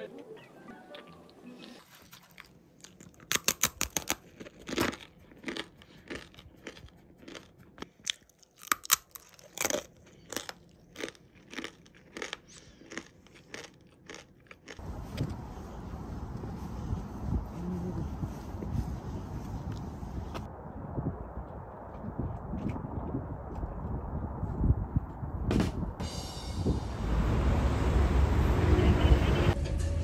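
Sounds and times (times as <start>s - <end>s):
crunching dry noodles: 1.0s - 14.8s.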